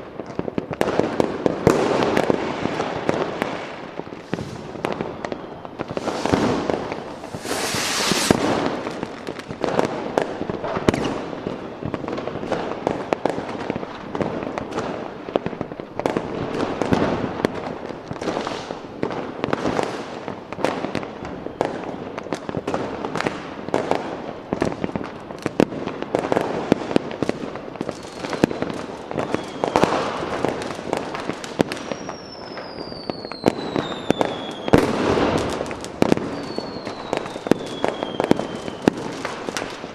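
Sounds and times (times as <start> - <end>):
fireworks bangs and crackling: 0.0 - 39.9
whistling rockets: 1.7 - 9.9, 10.7 - 12.0, 21.2 - 22.1, 27.9 - 39.9
loud hissing burst: 5.9 - 8.6.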